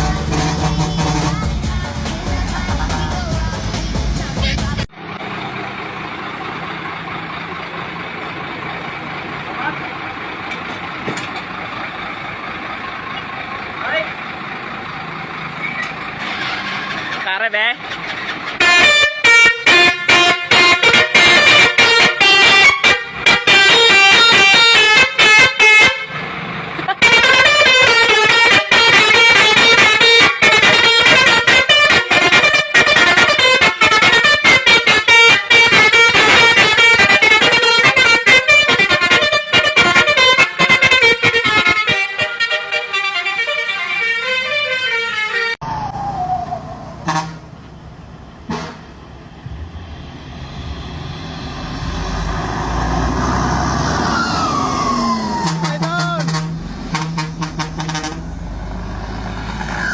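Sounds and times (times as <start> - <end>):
truck musical horn tune: 0.0 - 1.7, 18.5 - 45.6, 46.9 - 59.9
road vehicle low rumble: 0.0 - 59.9.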